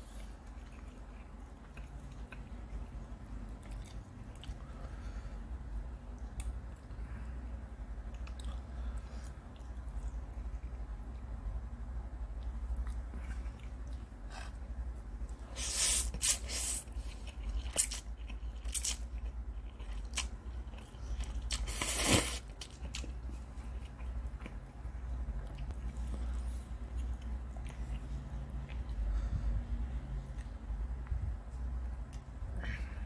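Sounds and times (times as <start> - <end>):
low steady hum: 0.0 - 33.0
chewing crunchy noodles: 0.1 - 4.8, 12.3 - 29.1.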